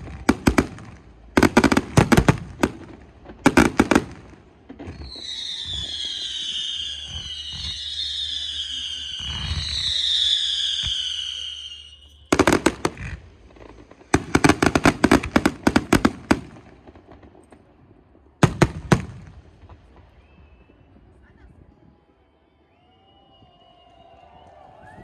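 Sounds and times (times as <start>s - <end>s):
firework cracks and bangs: 0.0s - 20.8s
firework whistling screech: 4.8s - 15.3s.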